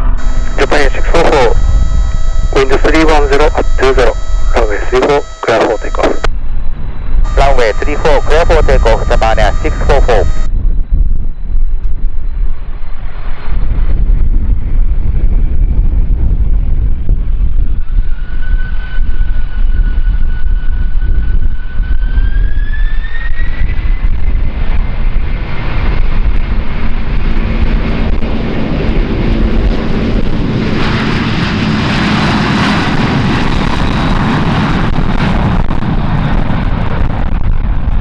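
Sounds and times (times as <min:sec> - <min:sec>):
wind buffeting microphone: 0:00.0 - 0:02.9, 0:06.3 - 0:38.0
jet engines whining and roaring: 0:00.0 - 0:10.5, 0:21.5 - 0:38.0.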